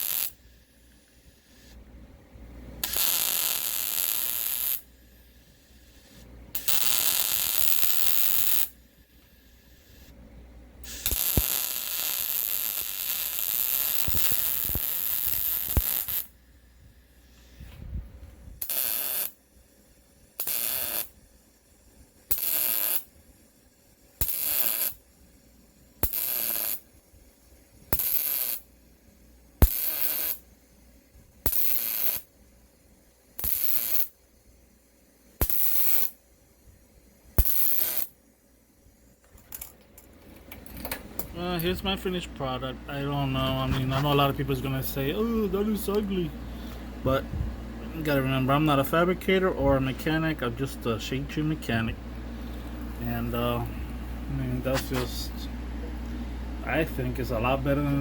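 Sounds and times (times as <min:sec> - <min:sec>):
welder arcing in bursts: 0:00.0 - 0:01.8, 0:02.8 - 0:10.2, 0:10.8 - 0:17.7, 0:18.4 - 0:39.2.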